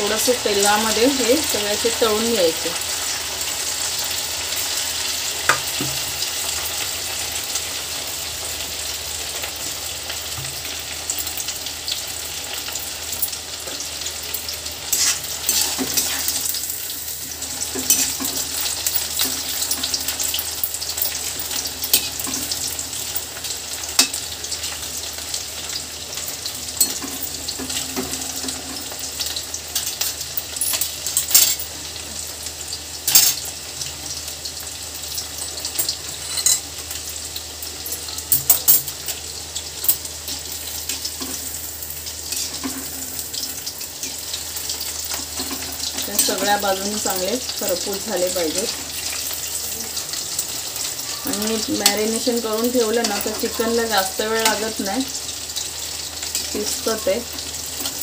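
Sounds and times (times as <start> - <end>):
chicken deep-frying in hot oil: 0.0 - 58.0
spoon stirring: 14.9 - 16.7, 17.6 - 22.6.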